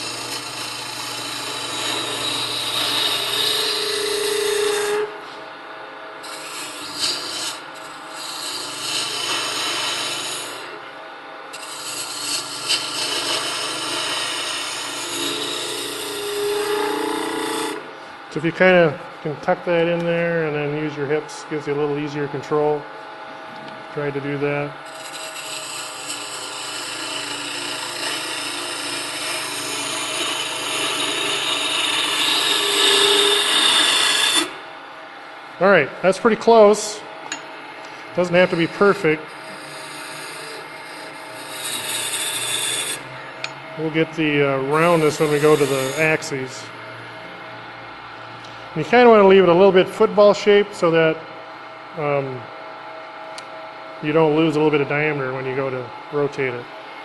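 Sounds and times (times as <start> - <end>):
gouge scraping spinning wood: 0.0 - 5.4, 6.2 - 10.8, 11.5 - 17.9, 24.1 - 34.6, 38.1 - 46.7
wood lathe hum: 0.0 - 57.0.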